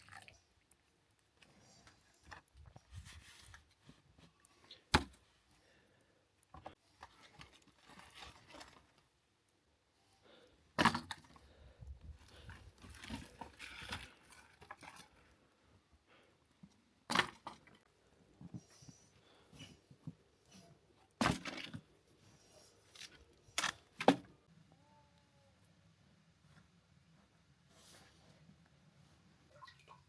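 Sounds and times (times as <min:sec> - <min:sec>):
rustling handling noises: 0:01.2 - 0:05.5, 0:06.5 - 0:09.2.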